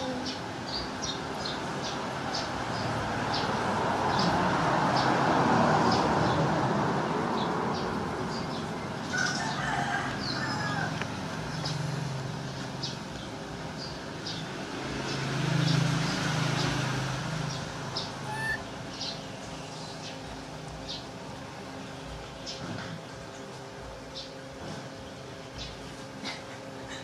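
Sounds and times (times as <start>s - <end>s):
rooster crowing: 9.1s - 11.1s.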